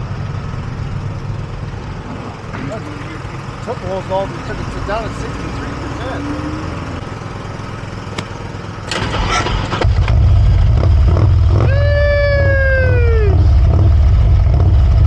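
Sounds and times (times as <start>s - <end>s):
motorcycle engine rumbling: 0.0s - 11.2s.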